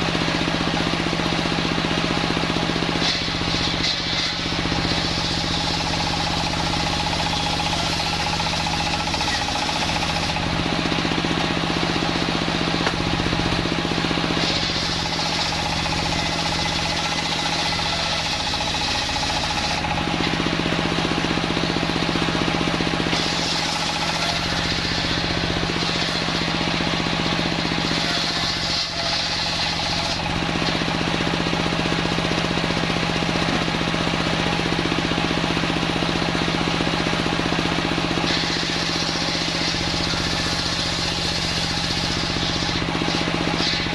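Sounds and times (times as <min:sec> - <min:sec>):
engine drone: 0:00.0 - 0:43.9
saw blade cutting wood: 0:00.0 - 0:43.9.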